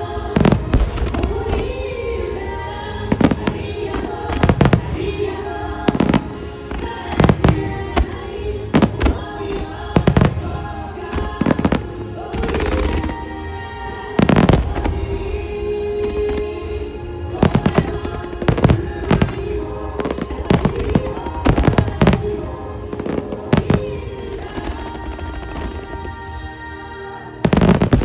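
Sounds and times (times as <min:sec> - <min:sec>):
song over loudspeakers: 0:00.0 - 0:28.0
firework shells bursting: 0:03.0 - 0:13.2, 0:17.3 - 0:24.5, 0:27.5 - 0:28.0.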